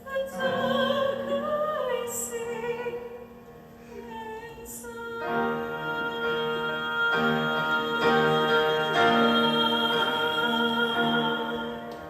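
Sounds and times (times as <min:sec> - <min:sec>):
keyboard playing sustained chords: 0:05.2 - 0:12.0.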